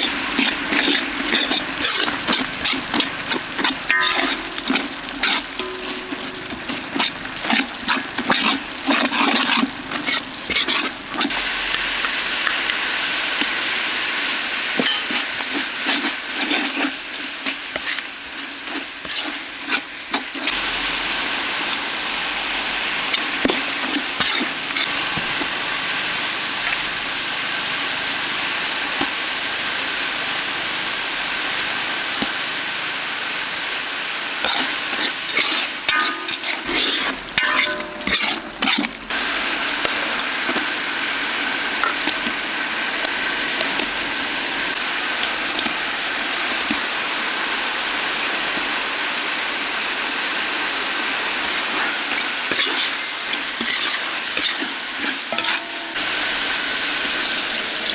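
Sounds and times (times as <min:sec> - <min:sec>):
utensil stirring and scraping: 0:00.0 - 0:12.8, 0:13.4 - 0:21.2, 0:23.0 - 0:25.5, 0:34.4 - 0:45.8, 0:51.4 - 0:56.2
food sizzling in a pan: 0:00.0 - 0:57.9.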